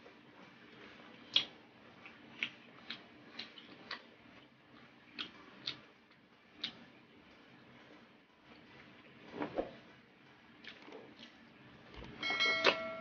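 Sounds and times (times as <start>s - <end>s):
wet chewing and lip smacks: 0.8s - 6.9s, 10.6s - 11.4s.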